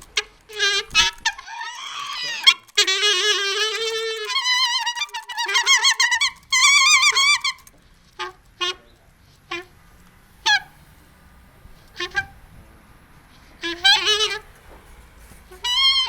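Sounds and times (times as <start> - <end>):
bird warbling: 0.0 - 8.8, 10.4 - 11.0, 11.8 - 12.6, 13.6 - 14.5, 15.4 - 16.0.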